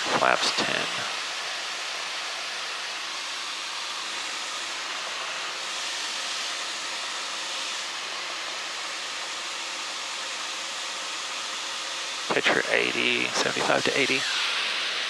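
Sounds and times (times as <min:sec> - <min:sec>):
small plane cabin airflow hiss: 0:00.0 - 0:01.2, 0:12.3 - 0:14.3.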